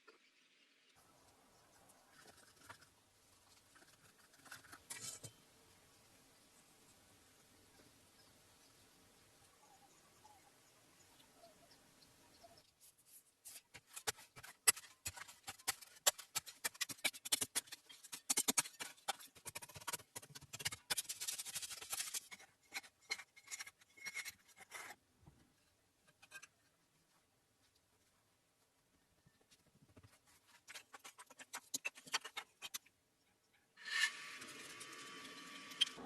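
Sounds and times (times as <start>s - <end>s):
rapid scratching and scraping: 2.0s - 5.3s, 12.8s - 25.0s, 30.0s - 32.9s.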